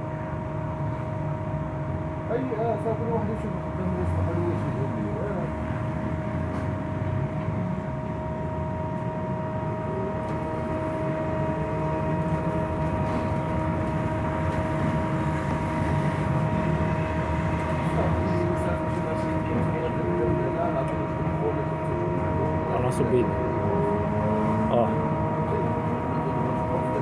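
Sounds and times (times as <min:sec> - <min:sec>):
electric motor whine: 0:23.4 - 0:27.0.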